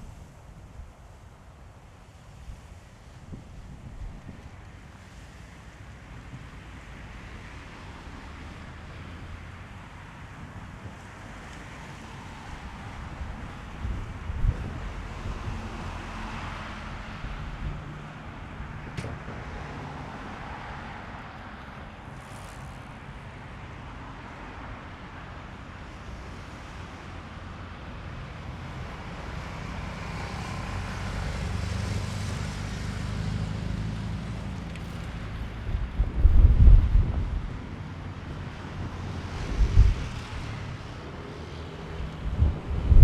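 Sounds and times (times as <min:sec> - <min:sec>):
wind gusting on microphone: 0:02.4 - 0:06.6, 0:09.1 - 0:24.9, 0:28.6 - 0:43.0
road traffic passing: 0:02.5 - 0:43.0.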